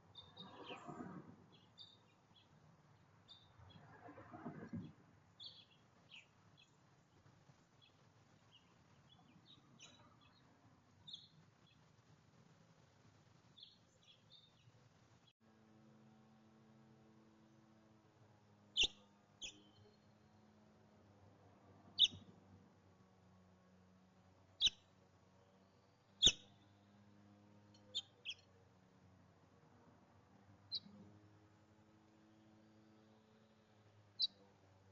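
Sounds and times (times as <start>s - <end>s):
small songbird chirping: 0.1s - 0.9s, 1.5s - 2.6s, 3.2s - 3.9s, 4.8s - 6.8s, 7.8s - 11.8s, 13.6s - 14.7s, 18.8s - 20.3s, 22.0s - 22.3s, 24.6s - 26.8s, 27.8s - 28.5s, 30.7s - 31.0s, 34.1s - 34.4s
faint bird chirps: 7.8s - 11.8s, 18.8s - 20.4s, 22.0s - 22.3s, 25.5s - 26.8s, 32.3s - 34.4s.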